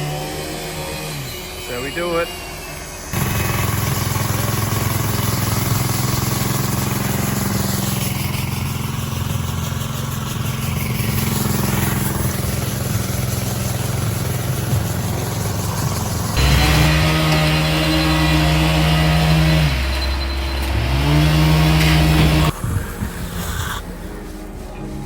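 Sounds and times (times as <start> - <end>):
concrete pump engine running: 0.0 - 25.0.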